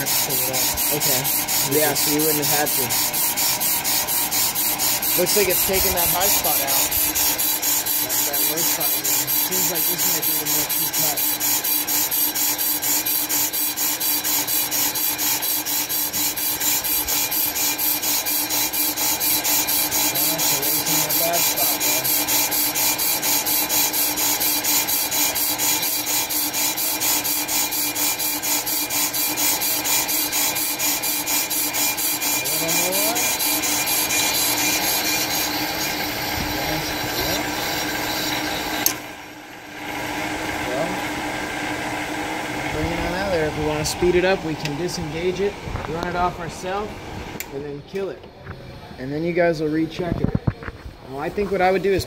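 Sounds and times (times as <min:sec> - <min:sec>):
cutting bits scraping rotor: 0:00.0 - 0:39.1
motor hum: 0:00.0 - 0:47.5
steady grinding whir: 0:00.0 - 0:52.0.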